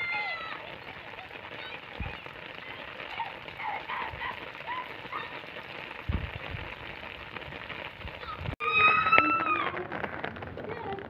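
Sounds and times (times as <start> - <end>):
heavy rain falling: 0.0 - 11.0
low thumps: 6.0 - 11.0.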